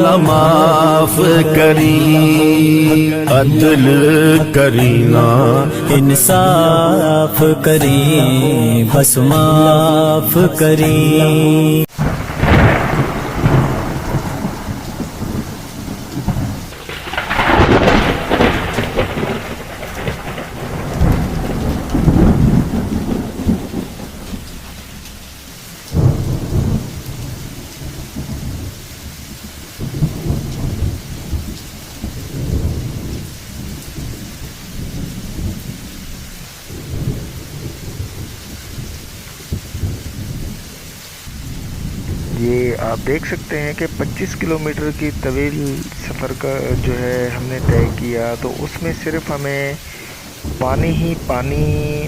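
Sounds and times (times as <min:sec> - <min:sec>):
steady rain: 0:00.0 - 0:52.0
rolling thunder: 0:11.9 - 0:52.0.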